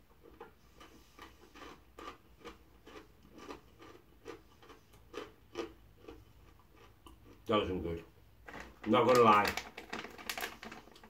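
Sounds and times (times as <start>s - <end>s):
crunchy snack being chewed: 0.3s - 7.5s.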